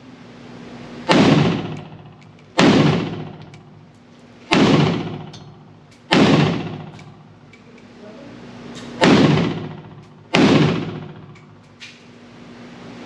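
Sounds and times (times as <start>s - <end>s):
pistol shots with ringing decay: 1.1s - 3.8s, 4.5s - 7.2s, 9.0s - 11.6s.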